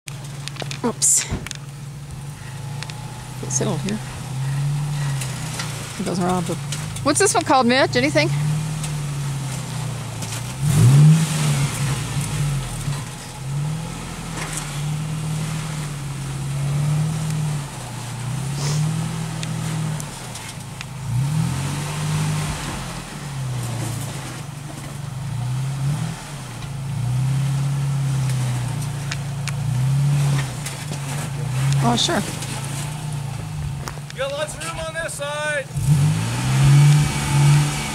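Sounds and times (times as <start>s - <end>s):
vehicle engine revving: 0.0s - 37.9s.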